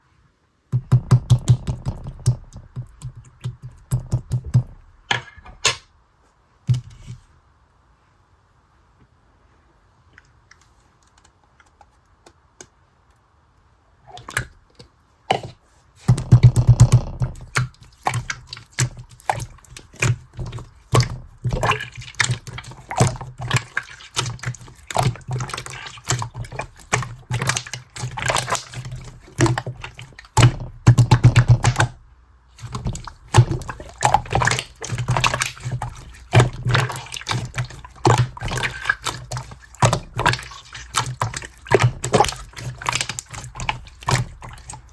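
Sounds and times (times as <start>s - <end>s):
slime squished by hand: 16.0s - 32.0s, 32.6s - 44.9s.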